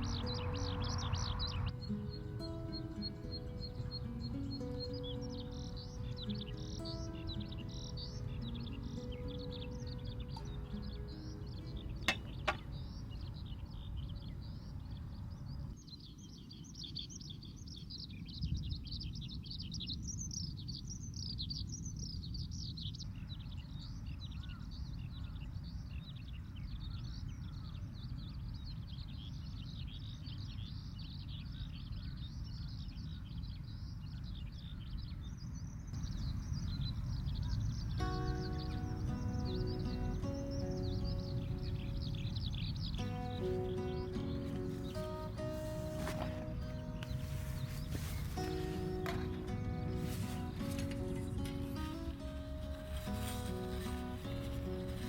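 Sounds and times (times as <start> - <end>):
skylark singing trills: 0.0 - 55.0
wind rumble on microphone: 9.7 - 43.2.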